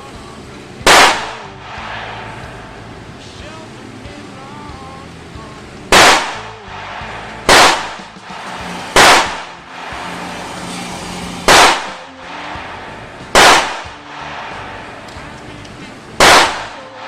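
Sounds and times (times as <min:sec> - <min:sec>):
gunshots: 0:00.8 - 0:02.8, 0:05.9 - 0:10.5, 0:11.4 - 0:12.6, 0:13.2 - 0:15.2, 0:16.2 - 0:17.0.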